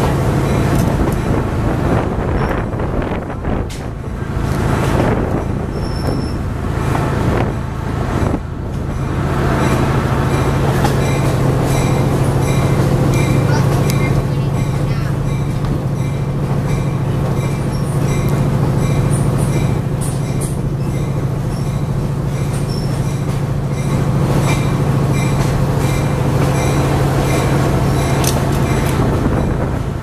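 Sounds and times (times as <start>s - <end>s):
train rumble on track: 0.0s - 30.0s
wheel squeals: 5.6s - 6.5s, 8.9s - 29.6s.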